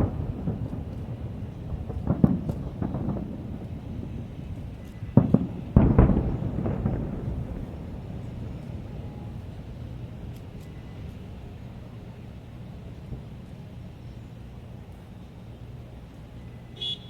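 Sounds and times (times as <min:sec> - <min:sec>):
fireworks shells bursting: 0:00.0 - 0:12.3
rumbling echo: 0:00.0 - 0:13.5.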